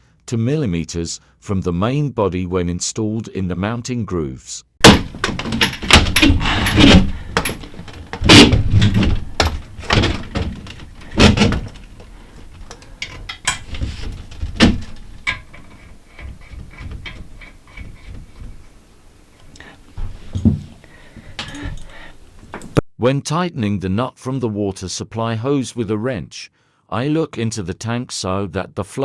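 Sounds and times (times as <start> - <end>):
plastic fittings knocking and clicking: 4.8 - 18.7.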